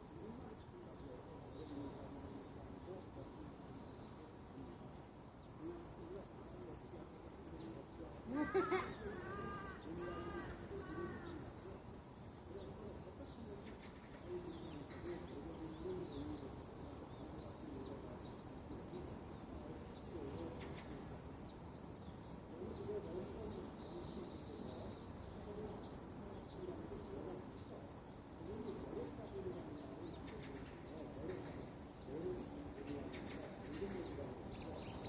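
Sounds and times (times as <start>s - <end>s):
lower wavering bird calls: 8.2s - 11.7s
loud bird call: 8.3s - 11.6s.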